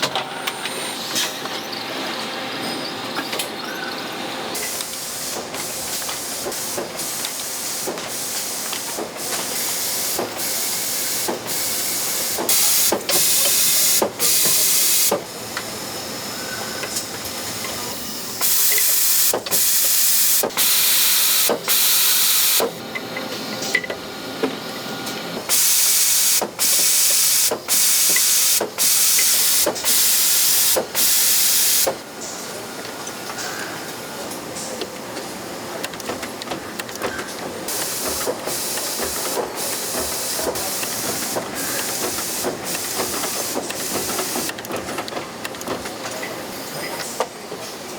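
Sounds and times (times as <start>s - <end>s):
compressed air hissing bursts: 4.6s - 15.2s, 18.4s - 22.7s, 25.5s - 32.0s, 37.7s - 44.5s
machine clicks: 34.8s - 46.3s.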